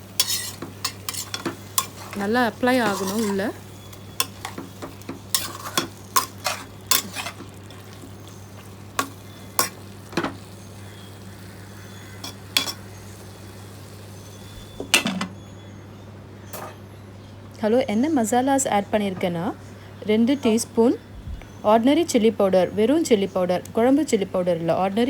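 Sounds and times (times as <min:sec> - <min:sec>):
utensil stirring and scraping pot: 0:00.0 - 0:13.2
low frying sizzle: 0:00.0 - 0:15.6
utensil clinking against pot: 0:00.2 - 0:02.2, 0:02.8 - 0:07.6, 0:12.2 - 0:12.8.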